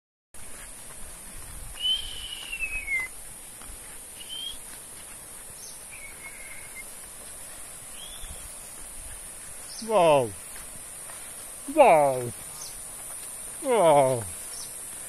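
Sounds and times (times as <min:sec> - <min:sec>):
steady high hiss: 0:00.4 - 0:15.0
bird whistling: 0:01.8 - 0:03.1, 0:04.2 - 0:04.6, 0:05.9 - 0:06.8, 0:08.0 - 0:08.4.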